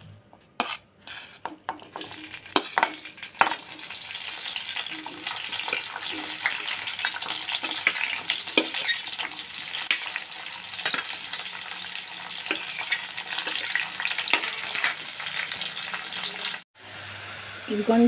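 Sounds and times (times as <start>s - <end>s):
steel spoon scraping a plate: 0.6s - 3.6s, 4.8s - 9.2s
onions sizzling in hot oil: 1.7s - 18.0s.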